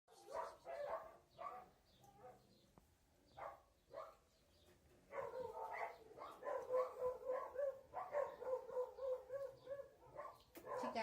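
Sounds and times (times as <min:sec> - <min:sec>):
dog yipping: 0:00.2 - 0:02.4, 0:05.1 - 0:11.0.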